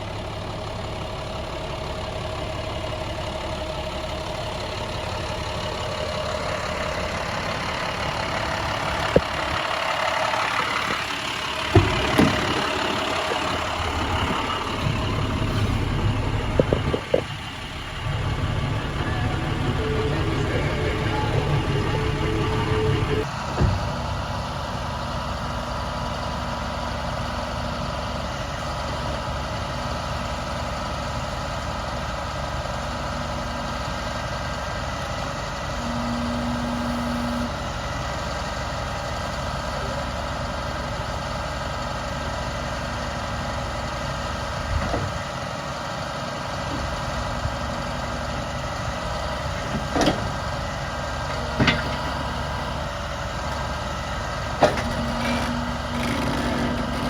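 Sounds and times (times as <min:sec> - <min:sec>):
diesel truck engine idling: 0:00.0 - 0:57.0
short knocks: 0:11.7 - 0:17.3.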